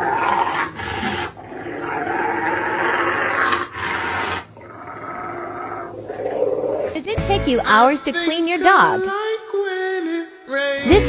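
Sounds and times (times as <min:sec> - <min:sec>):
dog growling: 0:00.0 - 0:07.2.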